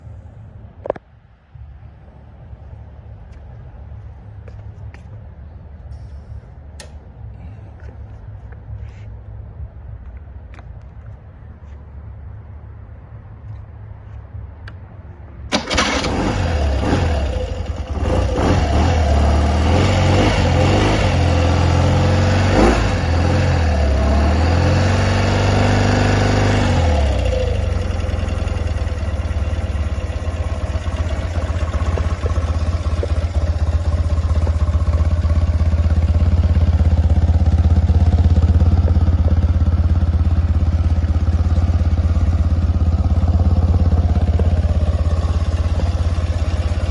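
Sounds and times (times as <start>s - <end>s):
motorcycle engine starting and revving: 15.5s - 46.9s.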